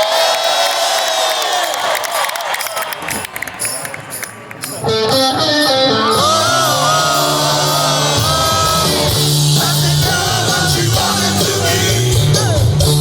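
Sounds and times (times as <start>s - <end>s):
rock band playing live: 3.1s - 13.0s
person singing: 5.1s - 13.0s.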